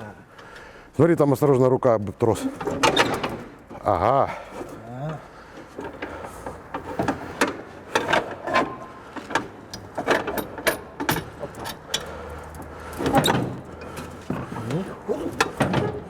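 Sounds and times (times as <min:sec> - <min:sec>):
engine hand crank clanking: 0:02.4 - 0:16.0.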